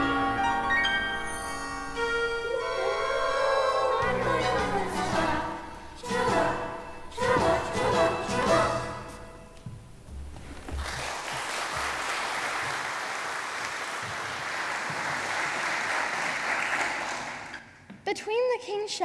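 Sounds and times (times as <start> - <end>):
congregation applauding: 10.7 - 17.8.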